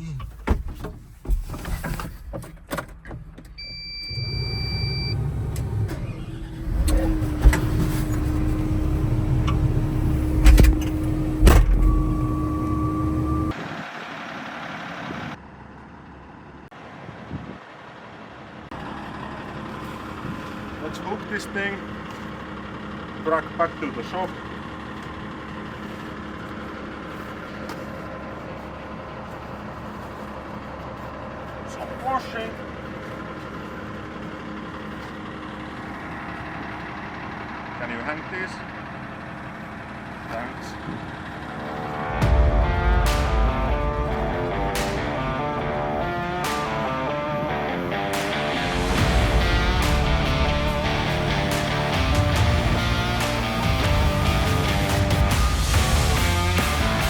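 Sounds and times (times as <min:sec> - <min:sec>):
loader engine running: 0:01.9 - 0:57.0
short electronic beep: 0:03.6 - 0:05.2, 0:11.8 - 0:13.5
steady whine: 0:04.1 - 0:13.9, 0:39.3 - 0:57.0.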